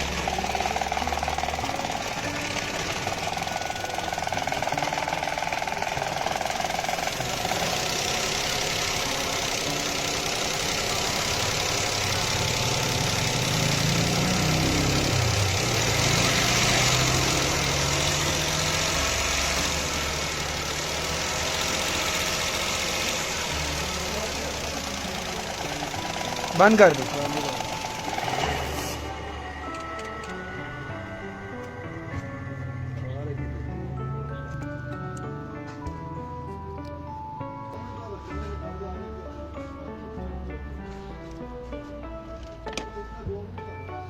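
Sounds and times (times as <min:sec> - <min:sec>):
car engine idling with misfire: 0:00.0 - 0:33.3.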